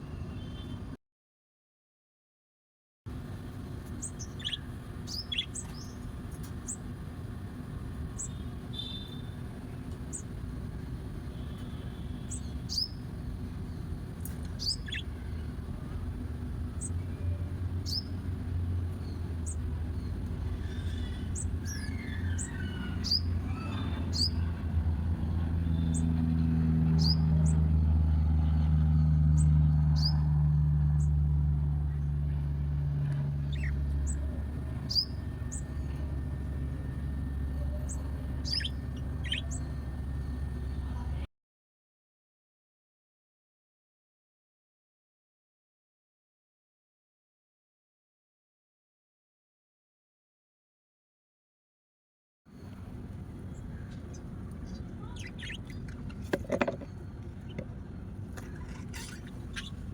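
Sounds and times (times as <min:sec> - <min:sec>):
low engine-like hum: 0:03.1 - 0:41.3, 0:52.5 - 0:59.9
birds chirping: 0:03.6 - 0:27.8, 0:28.5 - 0:30.2, 0:33.4 - 0:41.2, 0:52.7 - 0:59.9.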